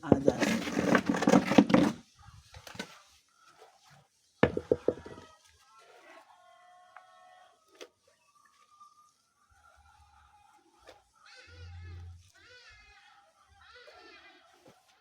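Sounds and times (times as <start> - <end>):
pestle pounding in a mortar: 4.4 - 5.2.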